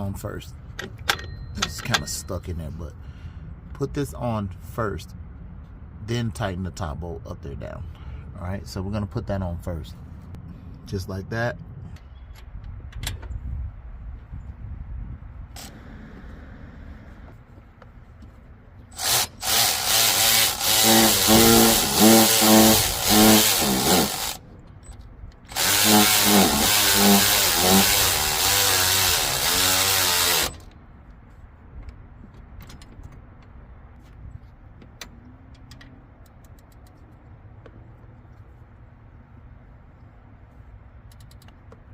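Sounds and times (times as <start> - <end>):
power tool motor pulsing: 19.0 - 24.4, 25.5 - 30.7.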